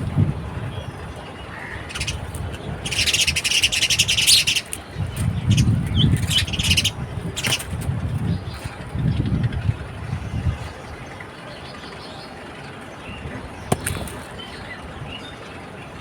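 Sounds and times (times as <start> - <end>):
small birds chirping: 0.7 - 9.4.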